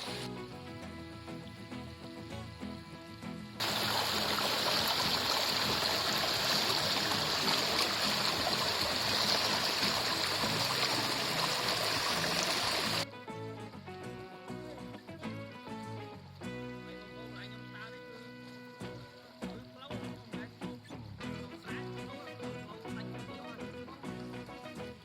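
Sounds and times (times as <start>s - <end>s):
fast-flowing water rushing: 0.0s - 0.4s, 3.6s - 13.1s
background music: 0.0s - 25.0s.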